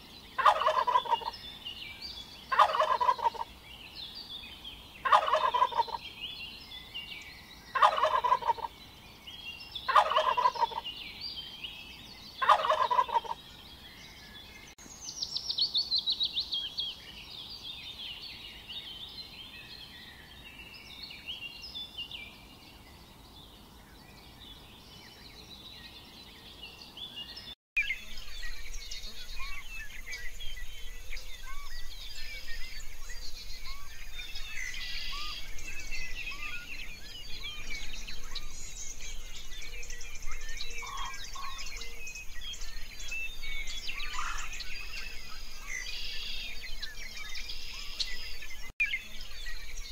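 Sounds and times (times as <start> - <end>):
small birds chirping: 0.0 - 49.9
turkeys gobbling: 0.4 - 1.3, 2.5 - 3.5, 5.0 - 6.0, 7.8 - 8.7, 9.9 - 10.8, 12.4 - 13.4, 40.8 - 41.6, 44.1 - 44.5.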